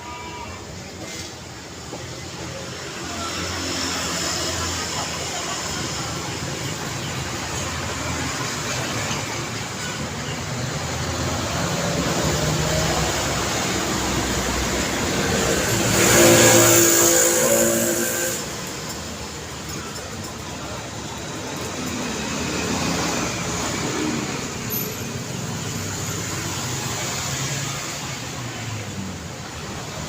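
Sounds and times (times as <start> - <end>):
road traffic: 0.0 - 30.0
vehicle passing close: 10.7 - 20.0.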